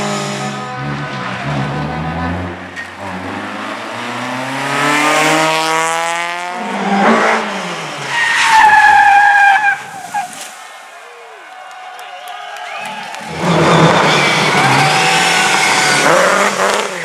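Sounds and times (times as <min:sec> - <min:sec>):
race car engine accelerating: 0:00.0 - 0:08.3, 0:13.2 - 0:17.0.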